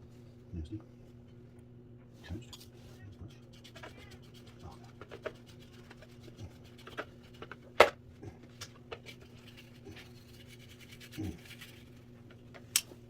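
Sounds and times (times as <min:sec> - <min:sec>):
light rubbing of plastic parts: 0:02.6 - 0:07.8, 0:08.6 - 0:12.3.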